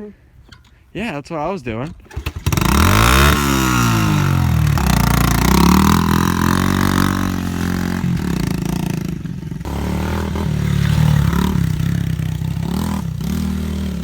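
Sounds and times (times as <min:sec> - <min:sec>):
pit bike engine revving: 0:01.9 - 0:14.0.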